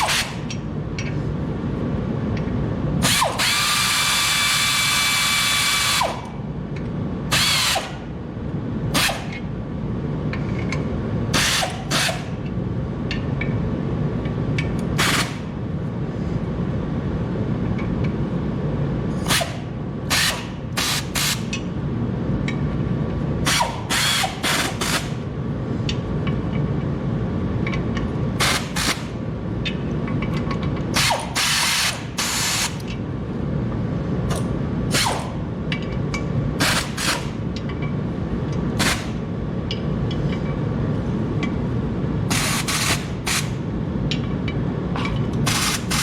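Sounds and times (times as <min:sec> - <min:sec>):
power drill bursts: 0:00.0 - 0:00.4, 0:03.0 - 0:06.2, 0:23.5 - 0:25.0, 0:31.0 - 0:32.7
steady low hum: 0:00.0 - 0:46.0.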